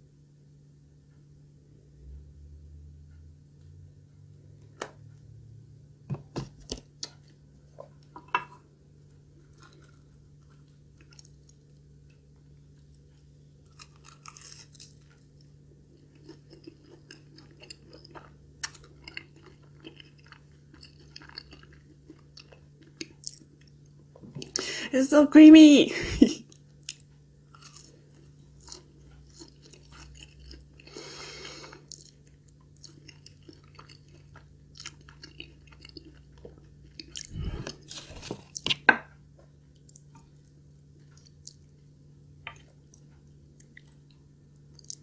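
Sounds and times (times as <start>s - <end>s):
crunching crispy fried food: 8.8s - 24.6s, 26.5s - 38.9s.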